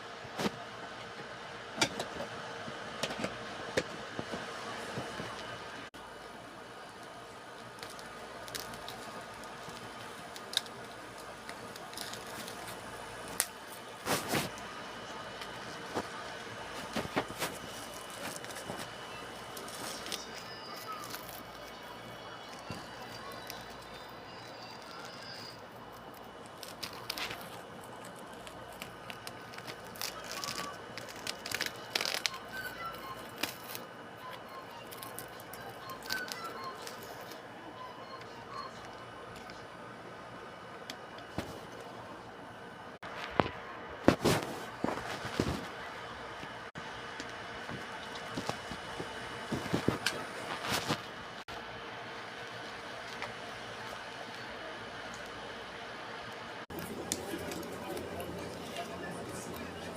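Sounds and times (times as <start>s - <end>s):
packaging crinkling: 7.5s - 16.1s, 16.7s - 37.4s
clicks and rustles of handling: 43.0s - 51.2s.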